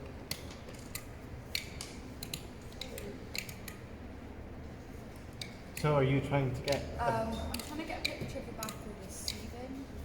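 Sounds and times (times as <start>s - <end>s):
steady low hum: 0.0s - 10.0s
sharp plastic clicks: 0.2s - 3.9s, 7.5s - 9.5s.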